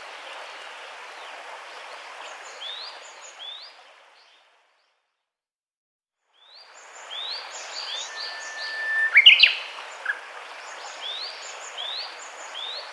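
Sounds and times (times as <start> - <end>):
outdoor background hiss: 6.4 - 12.9
sweeping bird call: 7.1 - 10.2.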